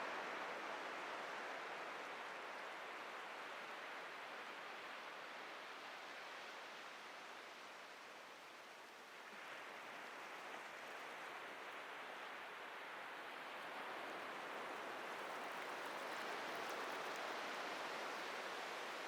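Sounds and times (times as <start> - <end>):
surf washing on a beach: 0.0 - 19.0.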